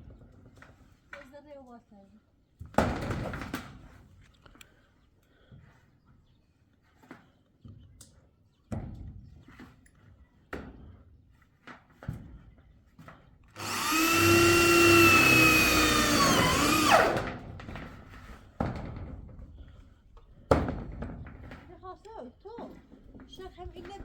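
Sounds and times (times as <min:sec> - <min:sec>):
small electric motor whining: 0:13.6 - 0:17.3.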